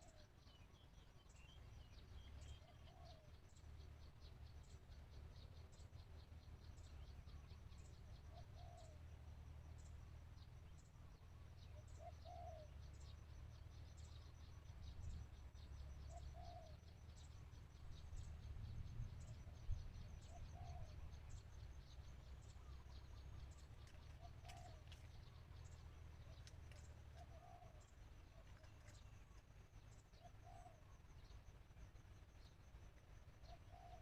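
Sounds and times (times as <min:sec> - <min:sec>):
low steady rumble: 0:00.0 - 0:34.0
dove cooing: 0:02.6 - 0:03.3, 0:08.3 - 0:09.0, 0:12.0 - 0:12.8, 0:16.1 - 0:16.8, 0:20.2 - 0:21.1, 0:23.8 - 0:25.1, 0:26.2 - 0:29.1, 0:30.2 - 0:30.9, 0:33.5 - 0:34.0.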